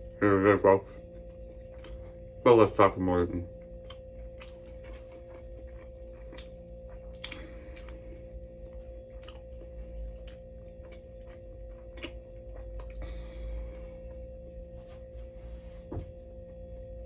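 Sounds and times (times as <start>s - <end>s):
steady hum: 0.0s - 17.0s
person chewing: 0.8s - 2.4s, 3.5s - 14.3s
wet mouth clicks and smacks: 12.0s - 13.0s.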